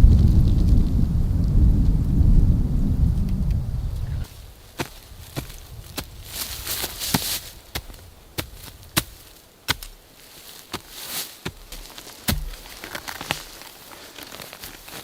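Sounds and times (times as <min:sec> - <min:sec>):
rustling: 0:02.7 - 0:15.0
wood chopping blows: 0:11.4 - 0:13.2.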